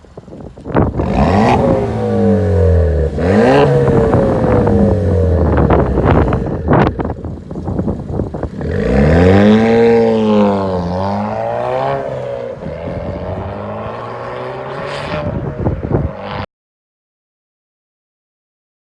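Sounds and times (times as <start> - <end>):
car engine revving and idling: 0.0 - 16.4.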